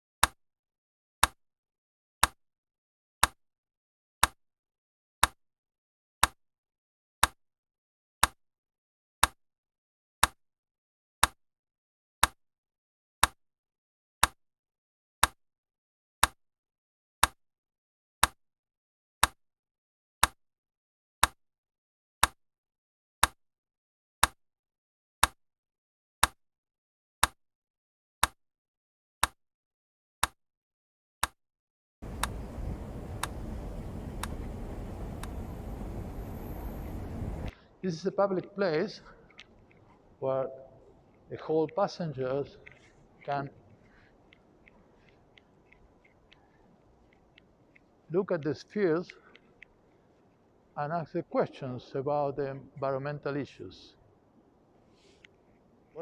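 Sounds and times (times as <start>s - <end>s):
low room noise rumble: 32.0s - 39.1s.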